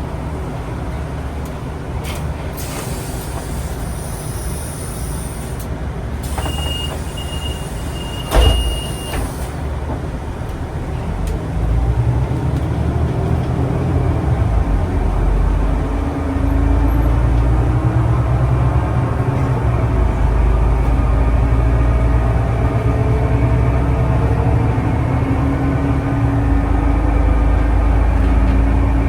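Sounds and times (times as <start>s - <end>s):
vehicle low rumble: 4.6s - 29.0s
doors shutting with thump: 6.2s - 10.1s
door-warning beep: 6.3s - 9.6s.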